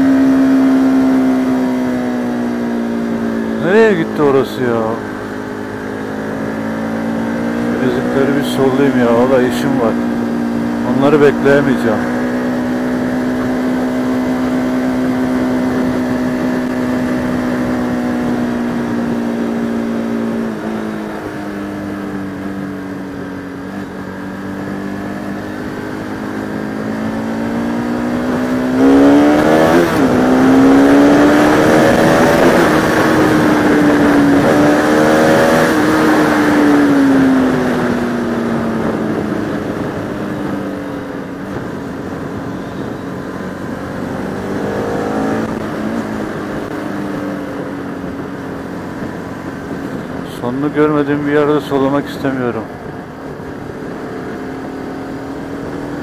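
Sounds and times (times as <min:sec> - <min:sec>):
motorcycle engine revving: 0:00.0 - 0:56.0
wind rushing over microphone: 0:26.6 - 0:56.0.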